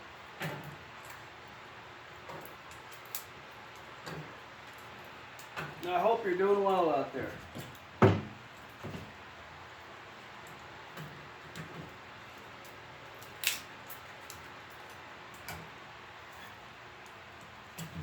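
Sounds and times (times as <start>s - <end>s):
fire crackling in a stove: 0.0s - 18.0s
low steady hiss: 0.0s - 18.0s
sharp pops of fire: 10.6s - 14.6s.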